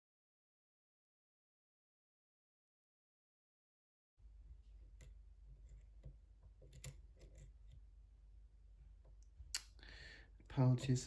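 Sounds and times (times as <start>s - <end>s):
low steady hum: 4.2s - 11.0s
lock pick clicking in a lock: 6.0s - 7.5s.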